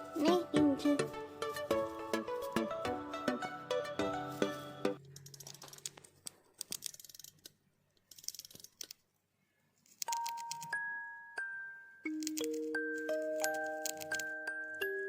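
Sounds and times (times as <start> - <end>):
background music: 0.0 - 5.0, 10.1 - 15.0
bell-like chime music: 10.2 - 15.0.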